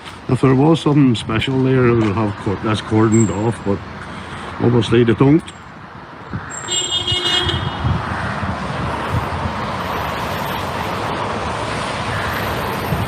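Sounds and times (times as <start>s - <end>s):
motor vehicle passing: 5.8s - 13.0s.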